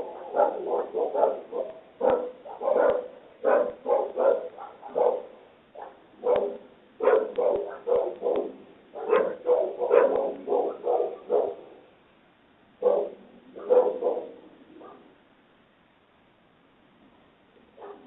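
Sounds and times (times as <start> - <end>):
dog barking: 0.0 - 11.8, 12.8 - 15.2, 17.8 - 18.0.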